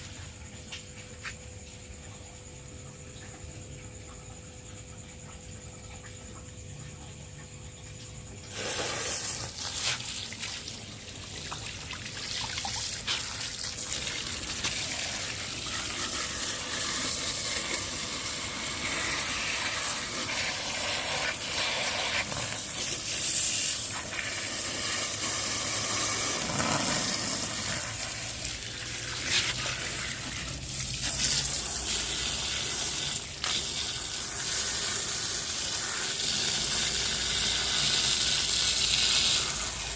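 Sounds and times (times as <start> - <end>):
pressure washer spraying water: 8.5 - 10.7, 12.8 - 39.9.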